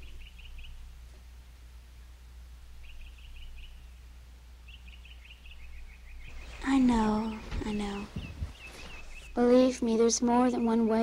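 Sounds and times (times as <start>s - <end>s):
faint bird chirping: 0.0s - 1.2s, 1.8s - 11.0s
steady low hum: 0.0s - 11.0s.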